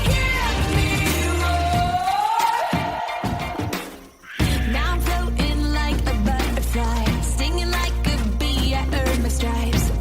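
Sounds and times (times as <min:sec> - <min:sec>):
pop song with drum beat: 0:00.0 - 0:10.0.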